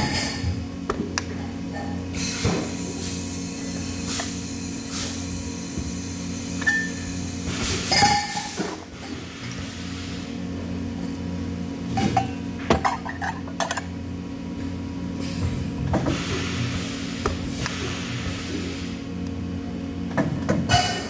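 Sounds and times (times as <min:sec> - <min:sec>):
low electrical hum: 0:16.6 - 0:20.1.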